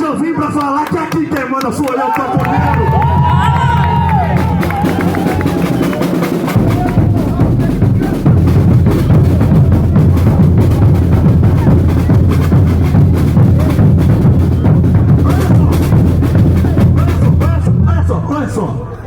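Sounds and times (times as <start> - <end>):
festival band drums and percussion: 2.3 - 18.4
deep bass beat: 2.3 - 18.6.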